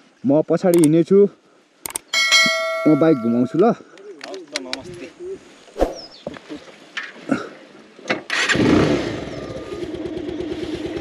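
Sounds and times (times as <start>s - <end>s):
motorcycle engine starting and idling: 8.3s - 11.0s.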